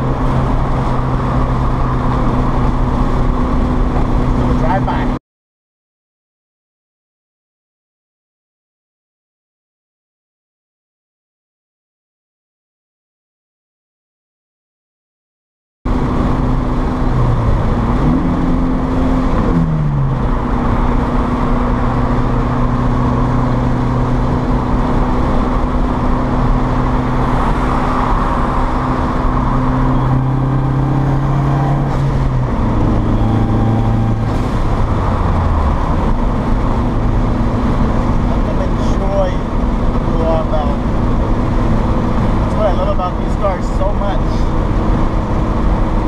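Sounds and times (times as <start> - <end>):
road and wind noise: 0.0 - 5.2, 15.9 - 46.0
turbocharged car engine: 0.0 - 5.2, 15.9 - 46.0.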